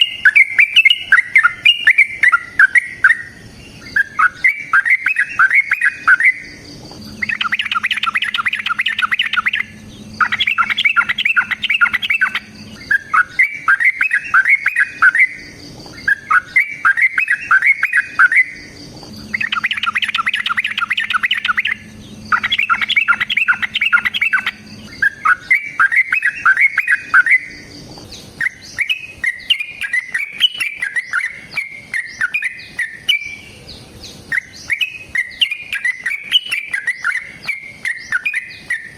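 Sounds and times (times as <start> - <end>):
bulbul singing bubbly notes: 7.2 - 15.4, 16.1 - 27.5.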